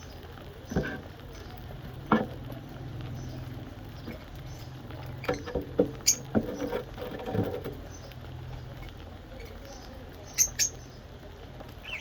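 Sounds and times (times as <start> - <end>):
small bird squeaks: 5.2 - 6.7, 10.3 - 10.8
high bird chirp: 7.8 - 11.1.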